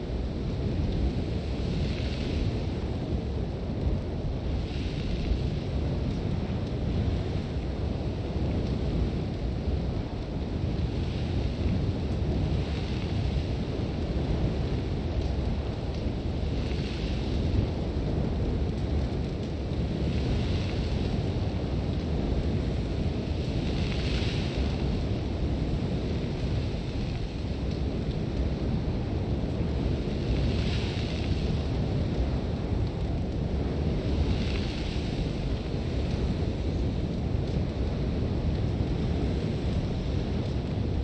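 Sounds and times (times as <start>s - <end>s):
wind rumbling heavily: 0.0s - 41.0s
sand hissing against a tent: 1.2s - 3.2s, 16.3s - 17.6s, 19.8s - 27.6s, 29.2s - 32.0s, 33.6s - 36.7s.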